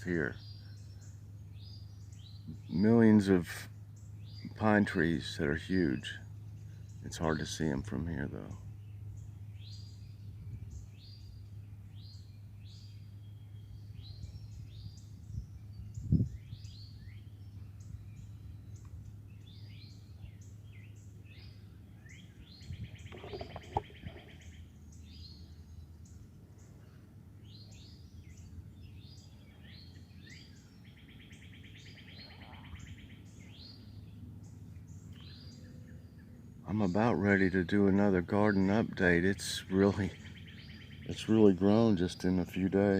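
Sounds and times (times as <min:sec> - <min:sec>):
buzzy bird trills: 0:00.0 - 0:42.9
low hum: 0:00.0 - 0:42.9
songbirds chirping: 0:00.0 - 0:42.9.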